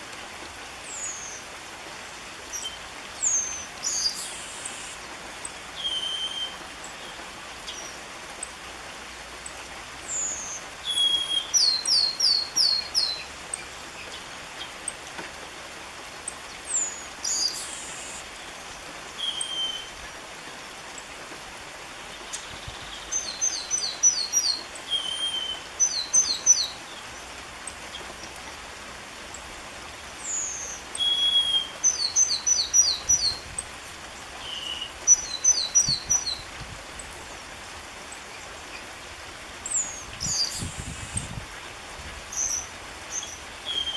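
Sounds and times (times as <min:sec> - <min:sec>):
steady background hiss: 0:00.0 - 0:43.9
bird singing whistled notes: 0:02.5 - 0:05.0, 0:05.8 - 0:08.0, 0:10.1 - 0:13.3, 0:16.7 - 0:18.3, 0:19.2 - 0:20.0, 0:22.3 - 0:27.0, 0:30.2 - 0:33.4, 0:34.4 - 0:36.4, 0:39.7 - 0:41.3, 0:42.3 - 0:43.9.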